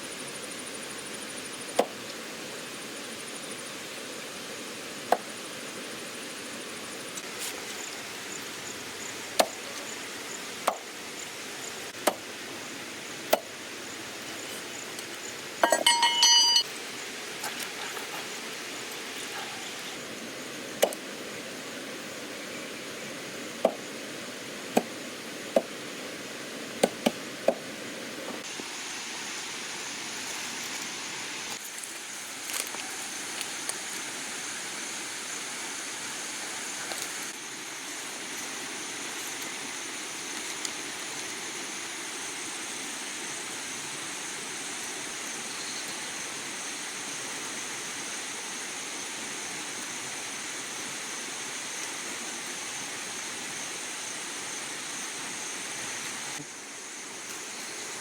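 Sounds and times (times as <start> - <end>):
steady hiss: 0.0 - 58.0
cooking utensils clinking: 15.6 - 16.7.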